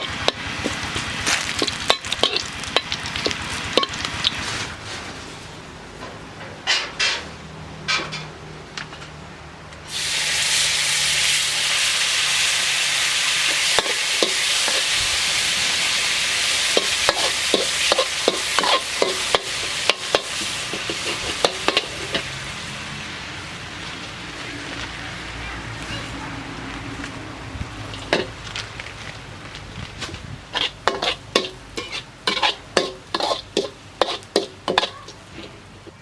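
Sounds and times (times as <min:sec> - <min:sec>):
food sizzling in hot pan: 0:00.0 - 0:04.5, 0:09.9 - 0:24.2, 0:30.5 - 0:35.3
spatula scraping and tapping pan: 0:00.0 - 0:04.8, 0:16.7 - 0:22.4, 0:27.9 - 0:29.1, 0:30.0 - 0:36.0.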